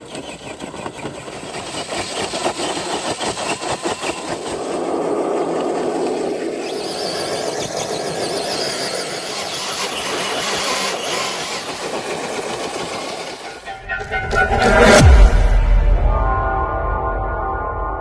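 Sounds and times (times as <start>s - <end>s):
toy truck electric motor running: 0.0s - 13.7s.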